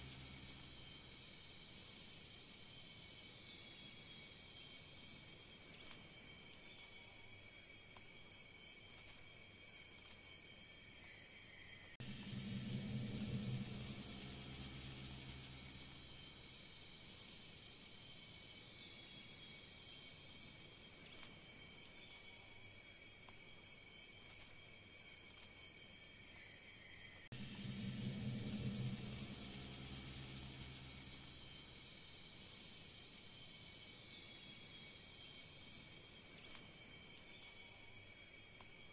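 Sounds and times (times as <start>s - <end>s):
low hum: 0.0s - 1.2s, 12.0s - 16.8s, 27.3s - 32.0s
crickets chirring: 0.0s - 38.9s.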